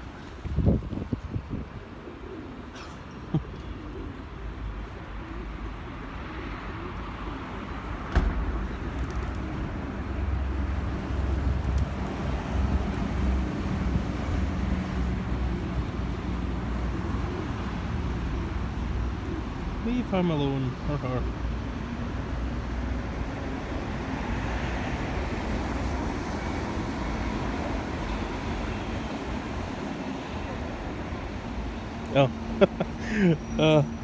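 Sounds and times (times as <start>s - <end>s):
low rumble of city traffic: 0.0s - 34.0s
pigeons cooing: 1.6s - 19.8s
sharp knock: 8.1s - 8.6s.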